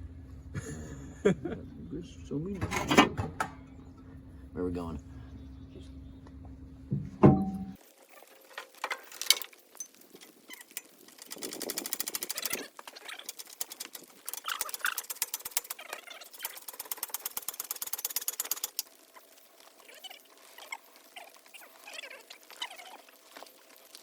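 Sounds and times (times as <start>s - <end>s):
rapid mechanical clicking: 10.1s - 19.0s.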